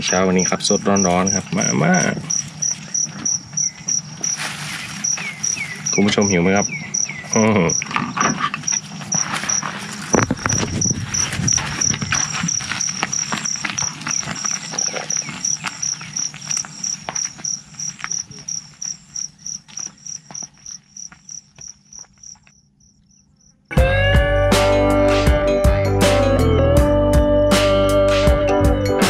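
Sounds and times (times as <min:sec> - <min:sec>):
insect chirping: 0:00.0 - 0:23.8.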